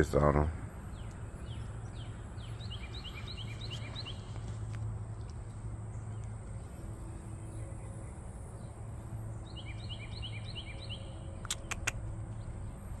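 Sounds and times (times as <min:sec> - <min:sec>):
bird chirping: 0:00.0 - 0:13.0
low background hum: 0:00.0 - 0:13.0
sharp clicks: 0:11.4 - 0:12.1.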